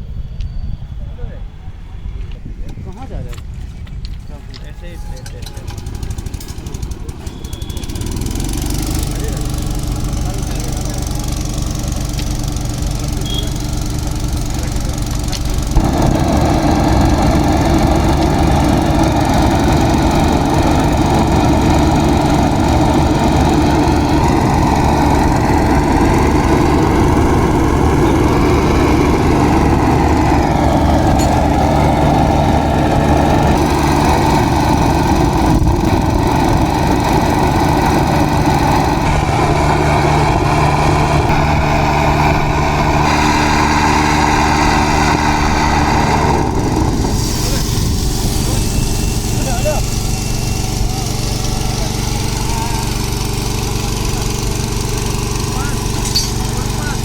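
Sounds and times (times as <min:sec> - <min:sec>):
small engine running: 0:04.9 - 0:57.0
loud even rushing noise: 0:07.9 - 0:51.4.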